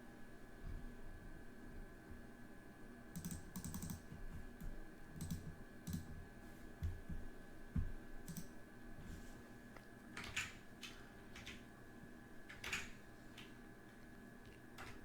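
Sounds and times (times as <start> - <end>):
keyboard keystrokes: 3.2 - 6.2, 7.8 - 8.6, 10.2 - 11.6, 12.5 - 13.6, 14.5 - 15.0.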